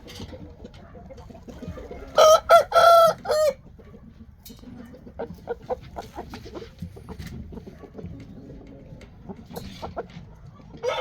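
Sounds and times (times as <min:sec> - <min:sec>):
rooster crowing: 0:02.2 - 0:03.6.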